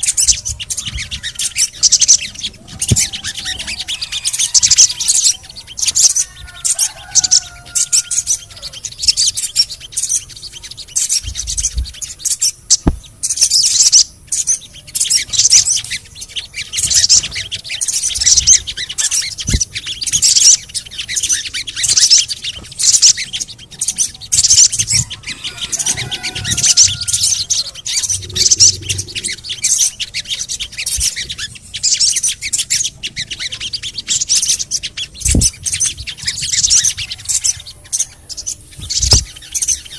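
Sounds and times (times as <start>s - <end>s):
bird chattering rapidly: 15.0s - 35.6s
whistled notes sliding down: 24.9s - 29.7s.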